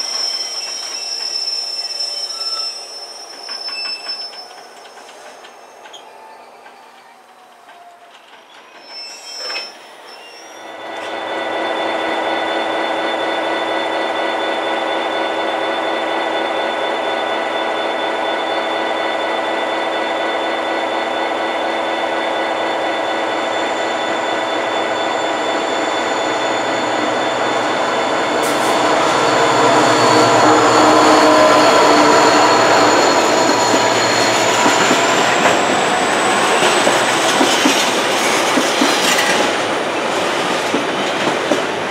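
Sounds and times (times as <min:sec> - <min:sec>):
freight train rumbling: 0:00.0 - 0:01.8, 0:10.8 - 0:41.9
train whine of held tones: 0:00.0 - 0:41.9.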